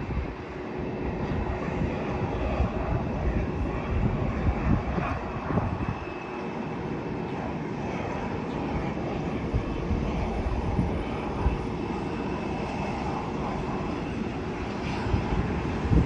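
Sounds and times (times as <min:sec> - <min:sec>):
jet engines rushing: 0:00.0 - 0:16.0
wind buffeting microphone: 0:00.0 - 0:16.0.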